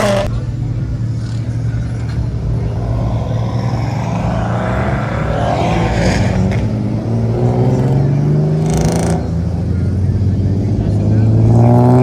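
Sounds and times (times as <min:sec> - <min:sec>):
car engine droning: 0:00.0 - 0:11.3.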